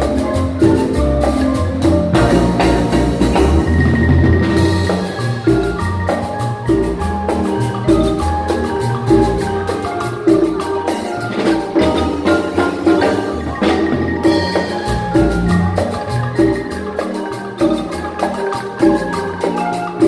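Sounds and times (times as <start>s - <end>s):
drums and percussion: 0.0s - 20.0s
marimba ensemble playing: 0.0s - 20.0s.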